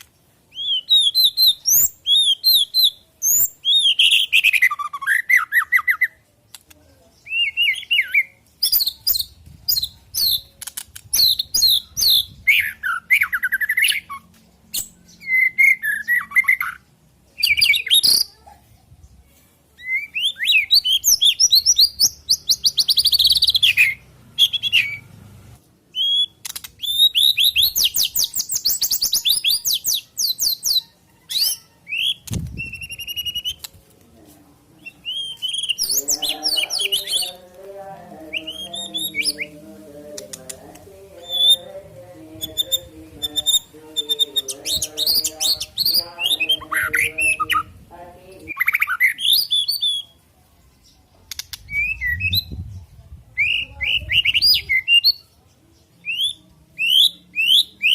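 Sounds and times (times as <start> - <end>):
songbird whistles and trills: 0.5 - 6.2, 7.2 - 16.8, 19.8 - 25.1, 25.9 - 33.7, 34.8 - 37.4, 41.2 - 41.7, 48.5 - 50.2, 51.3 - 55.3, 56.0 - 57.9.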